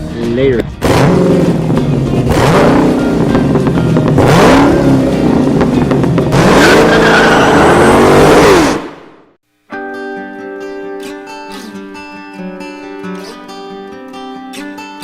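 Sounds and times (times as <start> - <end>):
car engine revving hard: 0.8 - 9.2.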